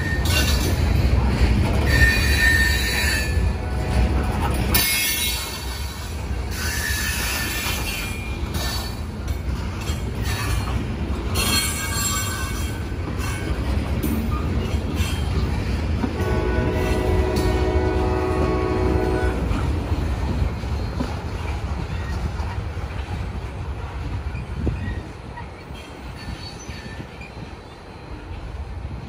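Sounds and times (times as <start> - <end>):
wheels squealing: 0.0 - 9.0
freight train rolling on rails: 0.0 - 29.0
multi-chime train horn: 1.9 - 5.4, 16.2 - 19.6.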